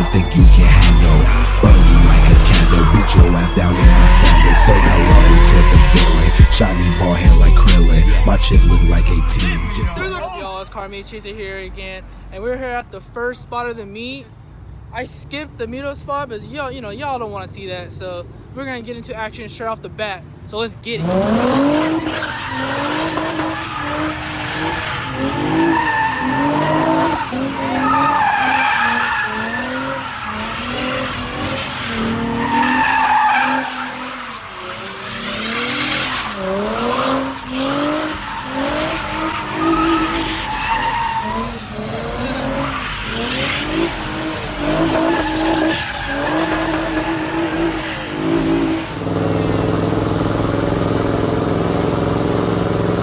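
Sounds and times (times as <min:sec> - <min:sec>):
car engine revving: 0:00.0 - 0:10.3, 0:20.9 - 0:53.0
tires screeching: 0:00.0 - 0:13.3, 0:20.8 - 0:53.0.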